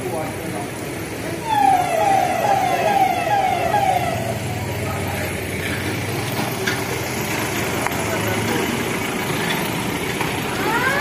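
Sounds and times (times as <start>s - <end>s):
vehicle engine running low: 0.0s - 11.0s
police siren wailing: 1.4s - 4.7s, 10.6s - 11.0s.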